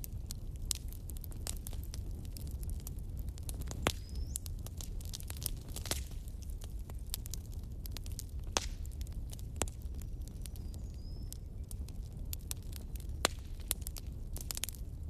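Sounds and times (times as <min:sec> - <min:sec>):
fire sharp pops: 0:00.0 - 0:15.0
low rumble of flames: 0:00.0 - 0:15.0
wood fire crackling: 0:00.0 - 0:15.0.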